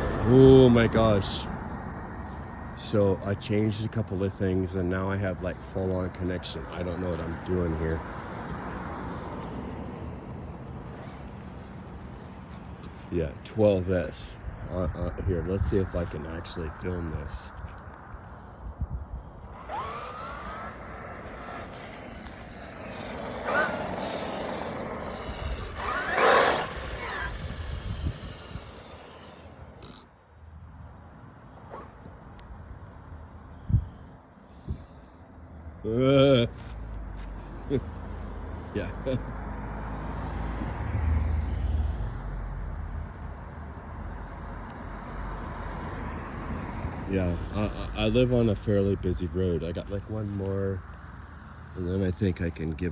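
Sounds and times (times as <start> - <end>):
car passing: 0.0 - 33.6, 34.5 - 52.9
steady traffic hum: 0.0 - 52.9
toy truck electric motor whining: 10.8 - 12.9, 19.4 - 30.2.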